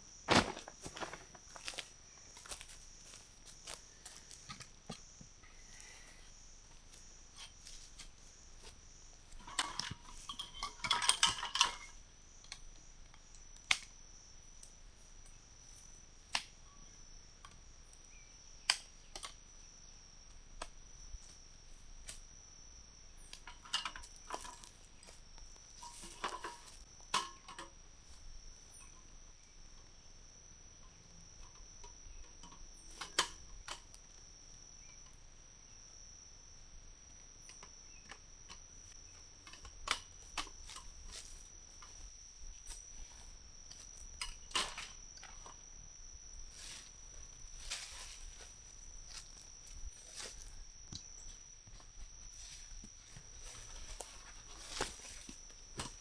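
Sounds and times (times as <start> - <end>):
crickets chirring: 0.0 - 56.0
rustling handling noise: 0.1 - 5.1, 46.5 - 56.0.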